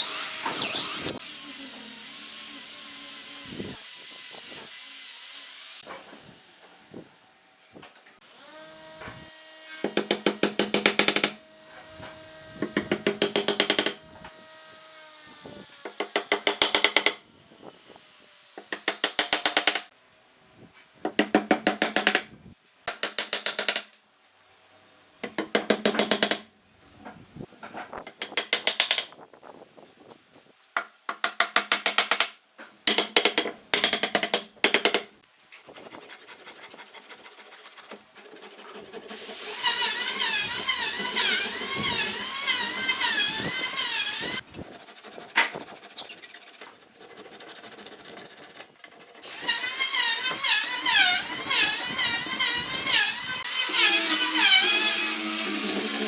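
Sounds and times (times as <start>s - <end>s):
power tool hammering on wood: 9.8s - 11.4s, 12.0s - 14.3s, 15.8s - 17.2s, 18.6s - 19.9s, 25.2s - 26.4s.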